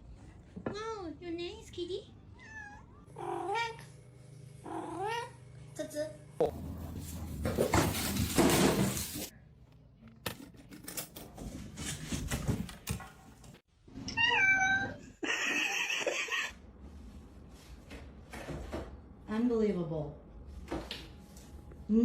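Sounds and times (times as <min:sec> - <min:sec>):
knocks and rustles: 0:06.4 - 0:09.3
cat meowing: 0:14.1 - 0:15.0.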